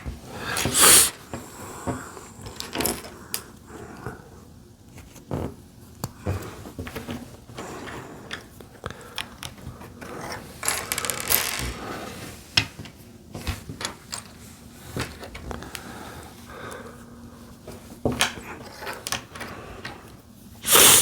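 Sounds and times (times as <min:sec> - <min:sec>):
plastic bricks clicking and rattling: 0:10.6 - 0:11.8.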